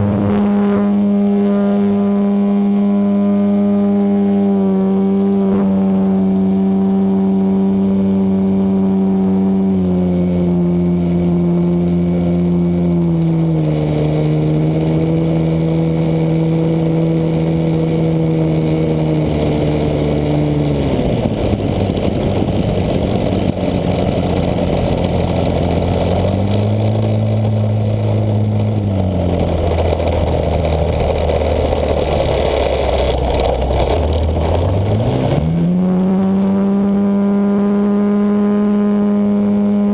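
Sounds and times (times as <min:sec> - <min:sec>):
model plane engine: 0:00.0 - 0:39.9.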